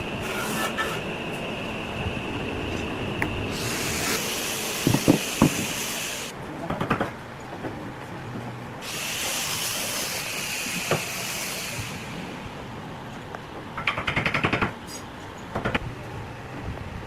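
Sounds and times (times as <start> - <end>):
steady hiss bursts: 3.4 - 6.3, 8.8 - 12.7.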